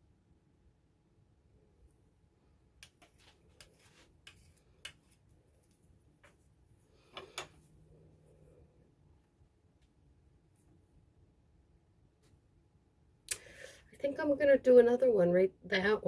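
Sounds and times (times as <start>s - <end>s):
quiet room hum: 0.0s - 16.0s
small objects clicking and tapping: 2.8s - 6.4s.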